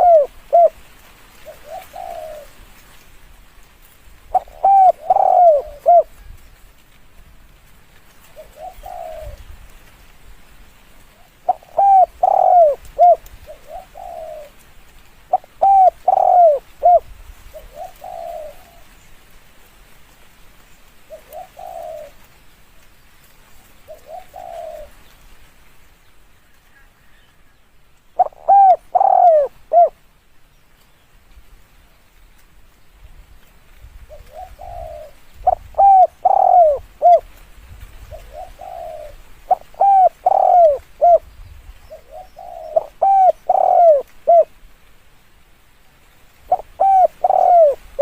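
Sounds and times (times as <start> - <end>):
dove cooing: 0.0 - 0.8, 1.4 - 2.6, 4.3 - 6.3, 8.2 - 9.6, 11.1 - 14.6, 15.3 - 19.0, 21.1 - 22.3, 23.9 - 25.0, 28.2 - 30.0, 34.1 - 44.6, 46.5 - 48.0.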